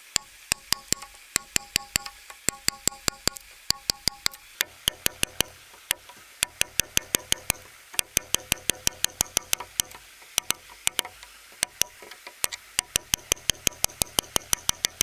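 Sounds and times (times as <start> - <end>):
hand tool tapping sharply: 0.0 - 15.0.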